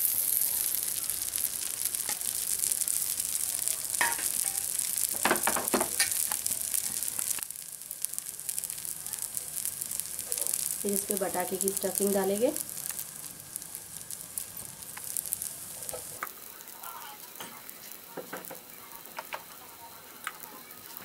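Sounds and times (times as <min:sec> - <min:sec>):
batter sizzling on a hot pan: 0:00.0 - 0:21.0.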